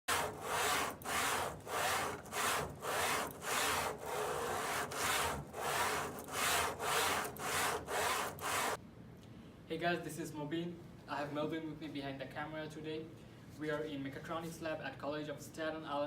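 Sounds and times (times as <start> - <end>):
hand tool rasping strokes: 0.1 - 8.8.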